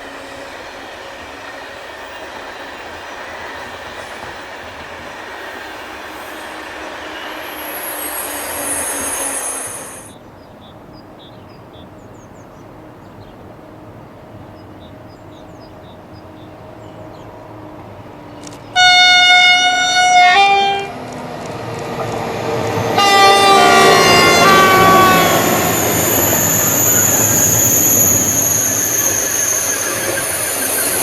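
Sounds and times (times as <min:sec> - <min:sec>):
train wheel squeal: 0:00.0 - 0:10.2, 0:22.0 - 0:31.0
train running noise: 0:00.0 - 0:31.0
train horn: 0:06.3 - 0:10.1, 0:18.8 - 0:21.0, 0:22.8 - 0:28.2.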